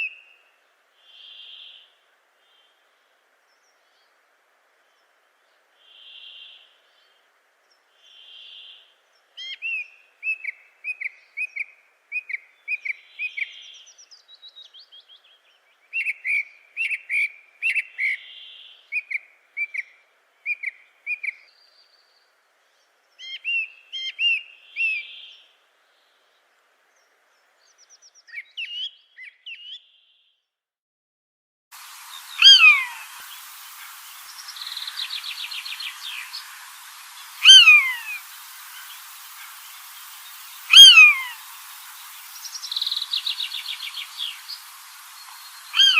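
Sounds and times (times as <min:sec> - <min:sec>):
birds chirping: 0:31.8 - 0:45.9
soft whistled bird notes: 0:32.0 - 0:45.9.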